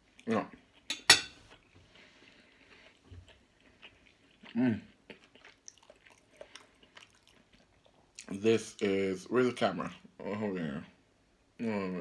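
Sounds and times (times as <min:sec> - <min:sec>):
person chewing: 0:00.0 - 0:08.9.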